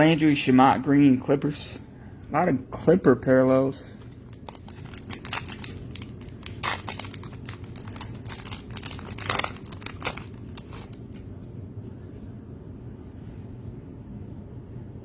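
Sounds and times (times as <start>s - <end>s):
steady low hum: 0.0s - 15.0s
wrappers crinkling and tearing: 4.0s - 11.3s.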